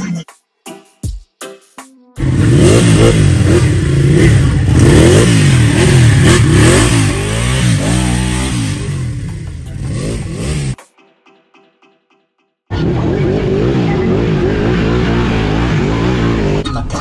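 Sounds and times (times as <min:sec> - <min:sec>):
motorcycle engine revving: 0:02.2 - 0:10.8, 0:12.7 - 0:16.6.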